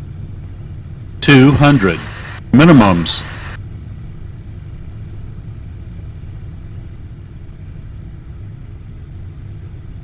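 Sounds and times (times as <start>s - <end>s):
jet cockpit low rumble: 0.0s - 10.0s.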